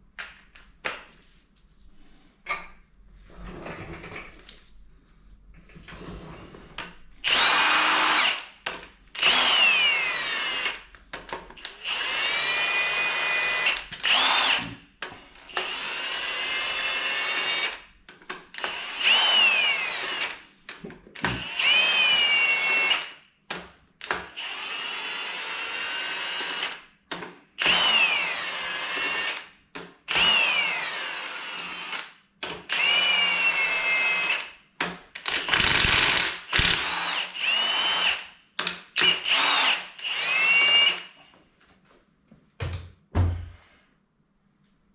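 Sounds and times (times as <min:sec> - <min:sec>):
power drill motor whining: 0:07.2 - 0:08.5, 0:09.2 - 0:10.8, 0:11.6 - 0:14.7, 0:15.4 - 0:17.8, 0:18.6 - 0:20.4, 0:21.2 - 0:23.1, 0:24.2 - 0:26.8, 0:27.6 - 0:29.4, 0:30.1 - 0:32.0, 0:32.7 - 0:34.5, 0:35.2 - 0:38.2, 0:39.0 - 0:41.2.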